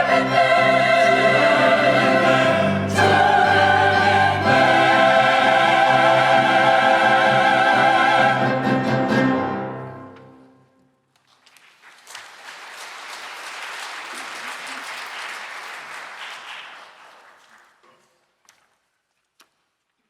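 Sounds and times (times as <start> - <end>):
choir and orchestra chord: 0.0 - 10.6
applause: 11.1 - 18.3.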